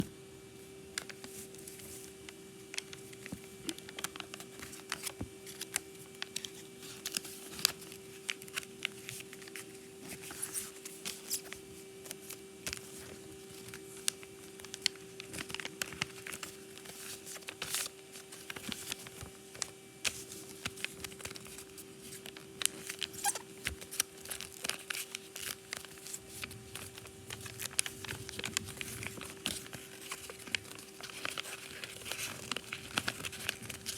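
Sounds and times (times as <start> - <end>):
faint steady hum: 0.0 - 33.9
paper folding and crinkling: 0.6 - 33.9.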